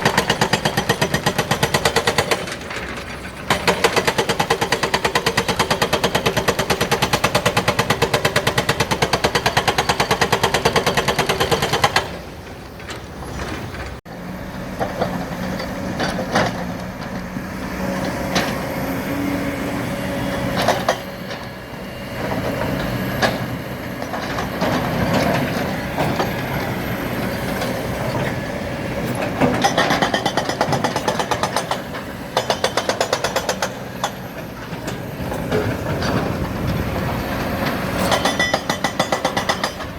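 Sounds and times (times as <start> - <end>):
hydraulic rock breaker hammering: 0.0 - 12.2, 22.2 - 39.9
diesel engine and hydraulics: 0.0 - 39.9.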